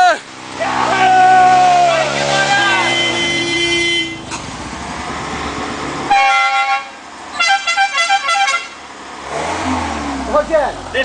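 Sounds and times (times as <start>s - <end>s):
low vehicle rumble: 0.0s - 7.7s, 8.6s - 11.0s
vehicle horn honking: 2.2s - 4.4s, 6.1s - 8.9s.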